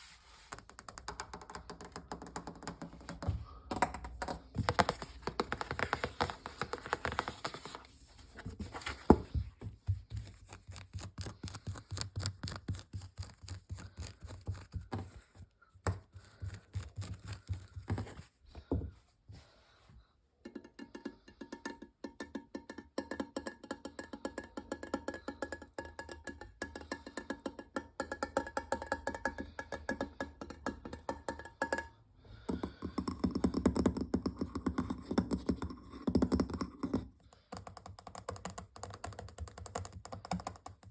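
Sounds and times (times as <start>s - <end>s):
fast tapping on objects: 0.5s - 18.9s, 20.5s - 40.9s.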